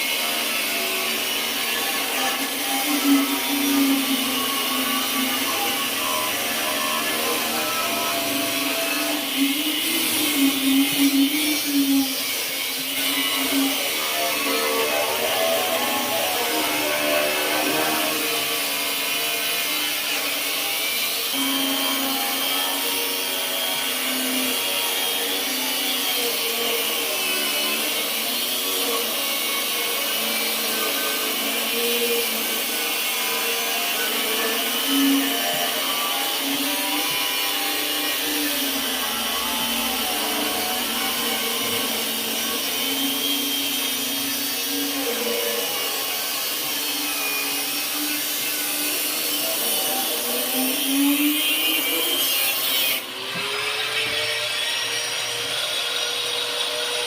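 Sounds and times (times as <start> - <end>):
angle grinder whining: 0.0 - 57.0.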